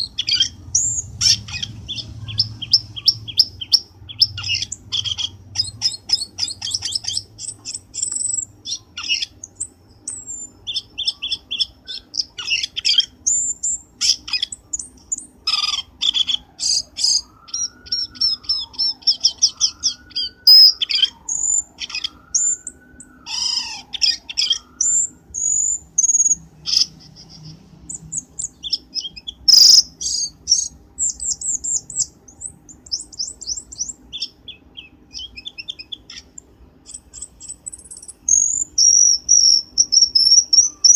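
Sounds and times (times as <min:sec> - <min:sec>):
bird chirps and trills: 0:00.0 - 0:40.9
low wavering whistle: 0:17.1 - 0:23.8.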